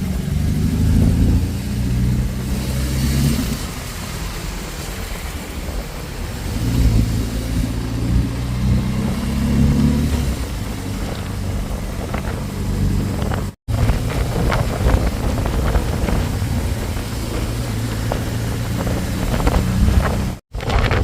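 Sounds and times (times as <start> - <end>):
wind buffeting microphone: 0.0 - 21.0
motorcycle engine running: 10.2 - 21.0.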